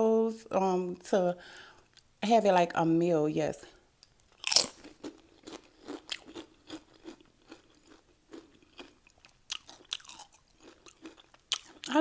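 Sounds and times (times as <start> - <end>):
crunchy chewing of chips: 4.0 - 12.0.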